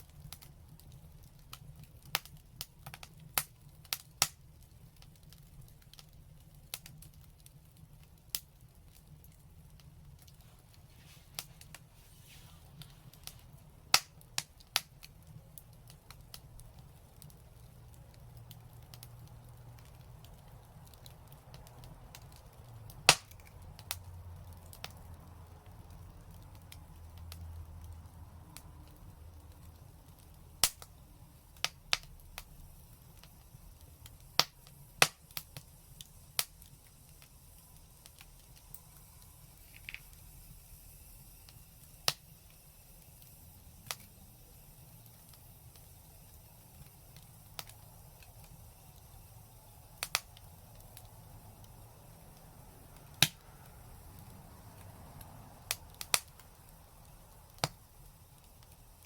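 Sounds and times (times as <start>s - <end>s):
low steady hiss: 0.0s - 59.0s
wood fire crackling: 0.0s - 59.0s
sharp pops: 12.7s - 15.0s, 23.0s - 23.6s.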